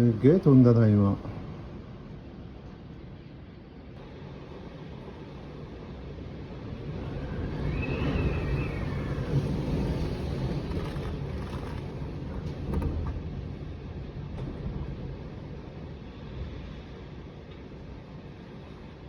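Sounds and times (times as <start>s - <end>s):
wind gusting on microphone: 4.4s - 19.0s
wind whistle: 6.9s - 11.8s.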